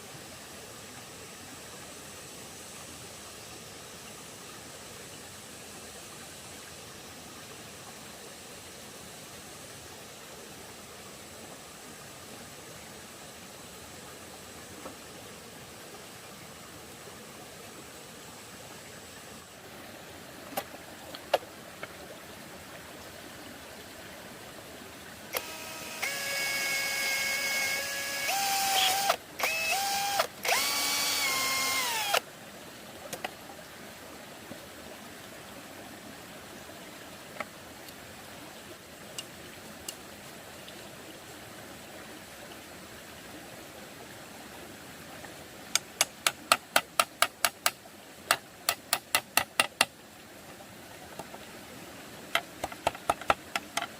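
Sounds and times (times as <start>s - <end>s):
electric drill motor whining: 25.3s - 32.2s.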